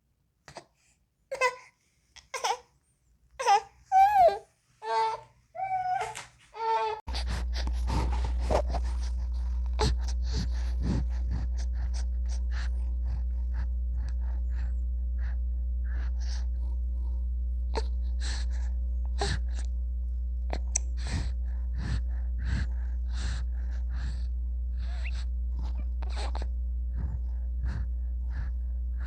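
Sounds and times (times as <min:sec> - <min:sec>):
baby snuffling: 0:07.1 - 0:13.0
low hum: 0:07.1 - 0:29.0.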